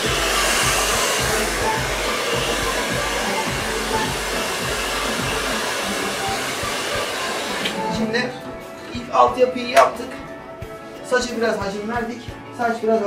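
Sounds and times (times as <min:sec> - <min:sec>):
hair dryer blowing: 0:00.0 - 0:09.0.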